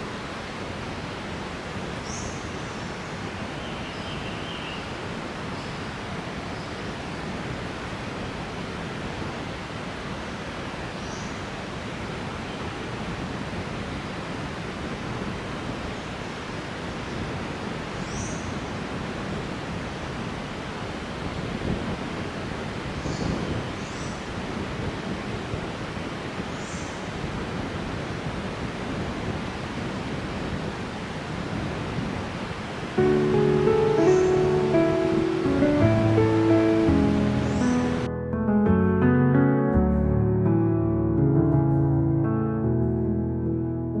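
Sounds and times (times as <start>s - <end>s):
steady outdoor rushing noise: 27.1s - 38.1s.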